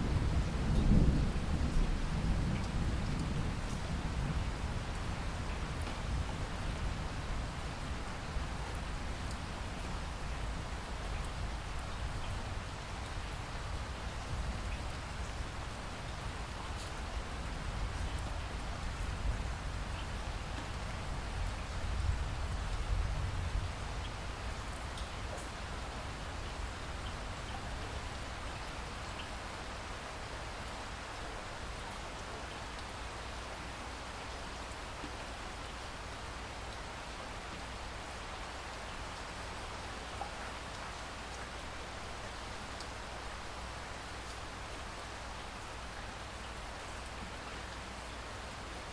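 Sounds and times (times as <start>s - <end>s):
steady rain hiss: 0.0s - 48.9s
raindrop ticks: 24.9s - 25.6s, 32.7s - 32.9s.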